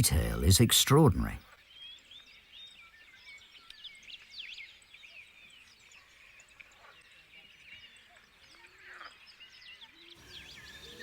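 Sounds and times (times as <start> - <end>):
small birds chirping: 9.2 - 11.0.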